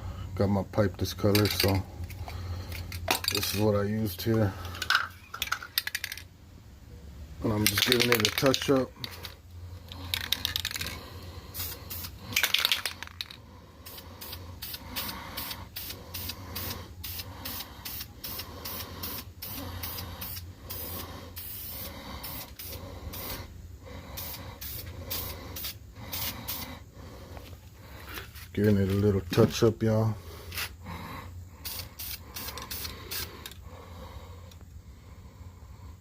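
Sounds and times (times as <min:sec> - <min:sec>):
spray can rattling: 0:01.3 - 0:01.8, 0:02.7 - 0:03.7, 0:04.8 - 0:06.3, 0:07.6 - 0:09.3, 0:09.9 - 0:11.0, 0:11.6 - 0:23.4, 0:24.2 - 0:26.6, 0:31.6 - 0:33.6
spray can hissing spurts: 0:09.9 - 0:23.5, 0:24.2 - 0:26.7, 0:31.6 - 0:33.6.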